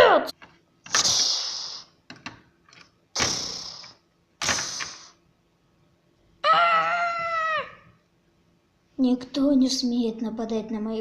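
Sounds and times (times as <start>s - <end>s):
hissing sound-effect hits: 3.2s - 5.2s
character's wavering cry: 6.4s - 7.9s.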